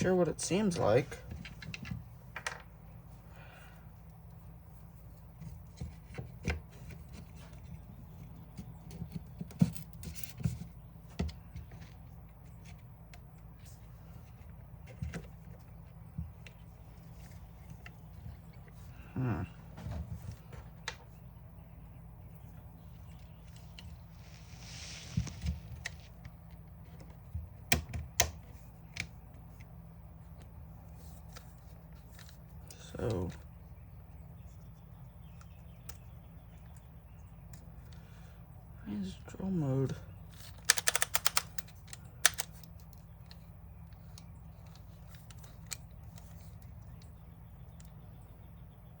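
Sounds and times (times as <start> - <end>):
steady low hum: 0.0 - 49.0
plastic parts clicking together: 40.2 - 48.0
drill parts clicking: 40.4 - 43.0.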